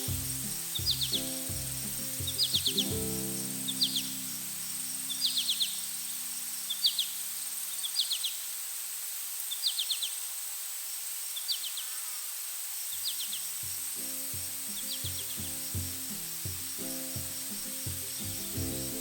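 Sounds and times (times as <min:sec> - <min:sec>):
music: 0:00.0 - 0:07.0, 0:13.6 - 0:19.0
high-pitched insect drone: 0:00.0 - 0:19.0.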